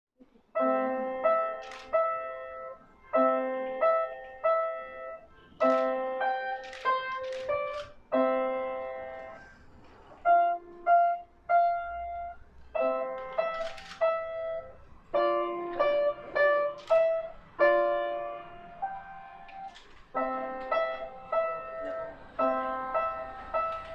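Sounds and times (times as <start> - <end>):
piano playing chords: 0.6 - 23.9.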